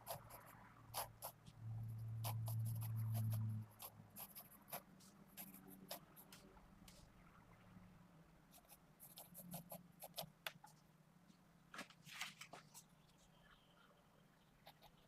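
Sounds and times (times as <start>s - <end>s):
pencil scratching on paper: 0.0s - 6.4s, 8.6s - 10.3s, 14.6s - 15.0s
low steady hum: 0.0s - 15.0s.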